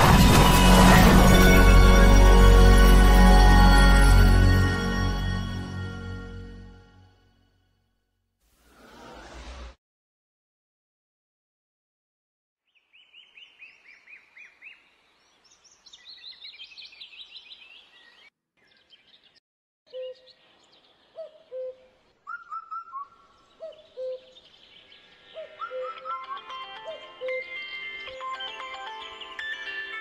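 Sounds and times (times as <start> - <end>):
birds chirping and calling: 15.4 - 28.6.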